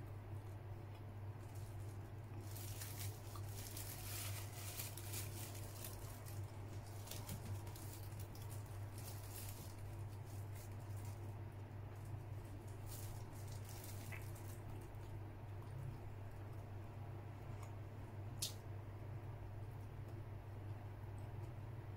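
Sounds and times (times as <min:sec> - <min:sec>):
chewing soft bun: 0:00.0 - 0:21.9
steady low hum: 0:00.0 - 0:21.9
plastic bag rustling: 0:01.4 - 0:15.1.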